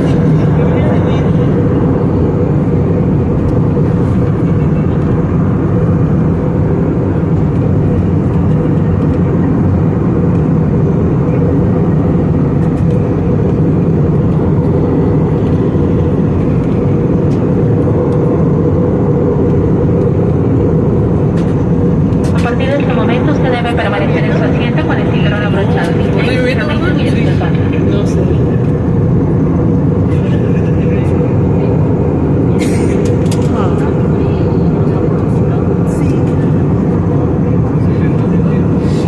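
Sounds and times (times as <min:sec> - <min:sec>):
airliner cabin rumble: 0:00.0 - 0:39.0.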